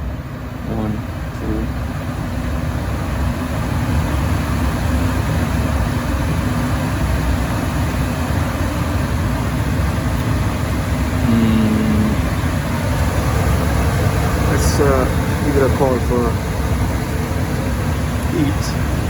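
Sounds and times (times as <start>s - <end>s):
gas furnace rumbling: 0.0s - 19.0s
pitched hum: 0.6s - 1.8s, 5.5s - 19.0s.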